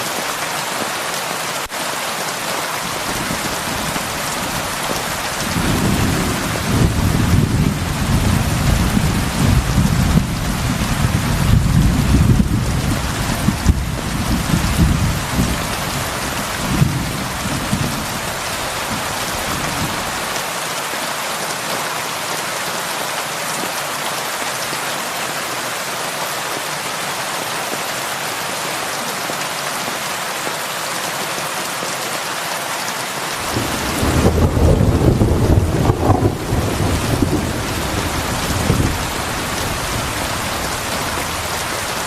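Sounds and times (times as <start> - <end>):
heavy rain on a roof: 0.0 - 42.0.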